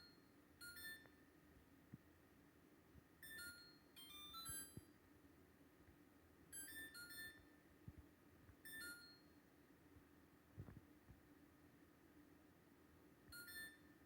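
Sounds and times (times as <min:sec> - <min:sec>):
faint electronic beeps: 0:06.6 - 0:07.5, 0:13.3 - 0:13.9.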